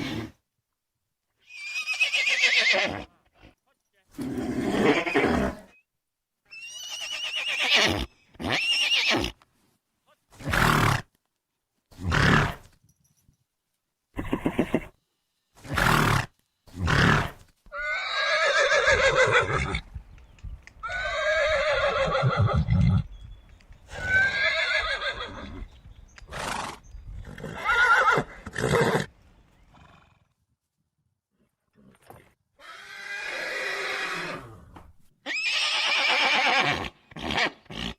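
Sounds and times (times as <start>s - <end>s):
horse whinnying: 1.4s - 3.1s, 4.1s - 5.8s, 6.5s - 9.4s, 12.0s - 12.7s, 14.2s - 14.9s, 15.6s - 19.8s, 20.8s - 23.1s, 23.9s - 25.7s, 26.3s - 29.1s, 31.9s - 37.9s.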